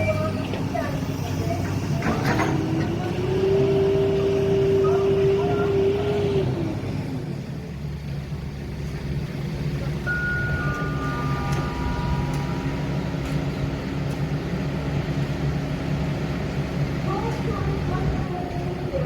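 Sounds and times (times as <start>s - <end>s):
heavy diesel engine running: 0.0s - 19.0s
high ringing tones: 10.0s - 14.0s.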